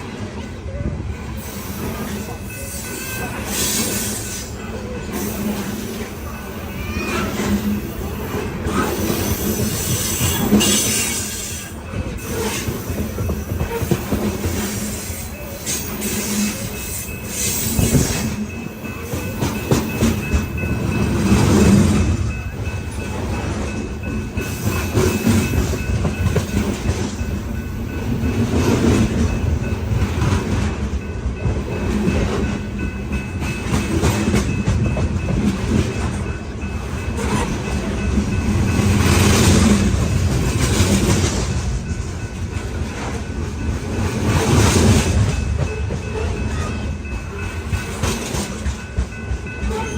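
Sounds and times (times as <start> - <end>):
freight train rumbling: 0.0 - 49.9.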